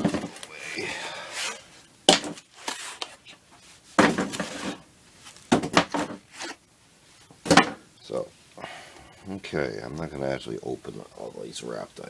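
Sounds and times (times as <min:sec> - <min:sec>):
cardboard rustling and scraping: 0:01.3 - 0:06.6.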